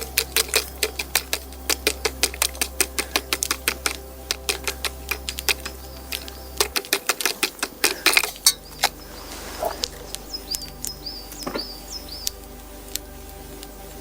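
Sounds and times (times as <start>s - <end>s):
sharp clicks and crackles: 0.0s - 9.0s
small bird chirping: 4.3s - 12.4s.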